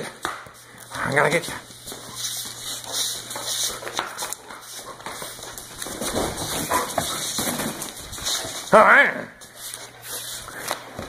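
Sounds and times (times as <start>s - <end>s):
scuffling and knocking: 1.8s - 8.7s
dog making sounds: 6.4s - 7.4s.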